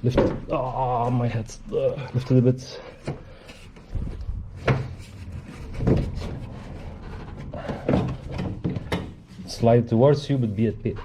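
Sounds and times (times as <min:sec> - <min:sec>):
plastic knocks and scrapes: 0:03.0 - 0:09.4.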